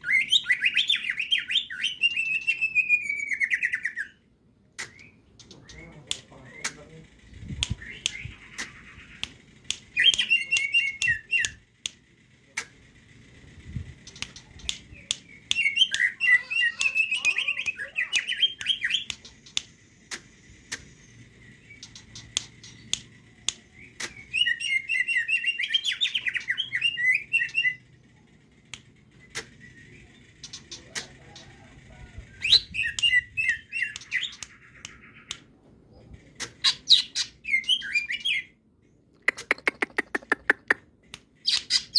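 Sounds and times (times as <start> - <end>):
sharp clicks: 4.8 - 24.4, 28.3 - 36.9, 39.1 - 41.9
bird singing chattering notes: 4.9 - 11.6, 13.6 - 19.3.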